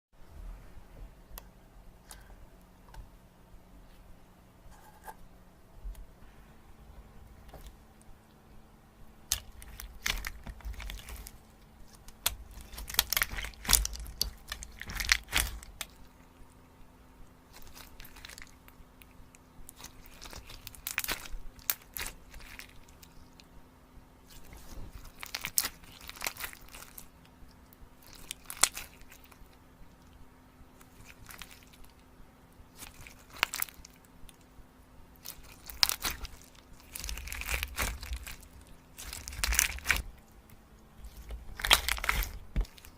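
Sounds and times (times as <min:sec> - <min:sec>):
faint hum: 0:00.2 - 0:42.9
chocolate crunching: 0:09.2 - 0:16.6, 0:17.4 - 0:23.5, 0:24.2 - 0:32.0, 0:32.7 - 0:34.5, 0:35.1 - 0:42.9.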